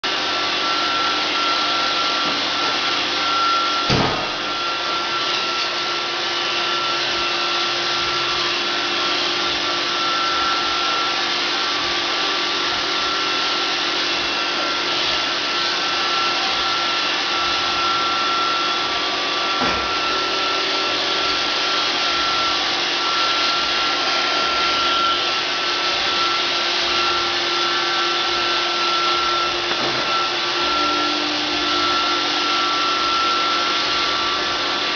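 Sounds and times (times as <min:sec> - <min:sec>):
robot vacuum whirring: 0:00.2 - 0:34.9
sharp knock: 0:03.9 - 0:04.3.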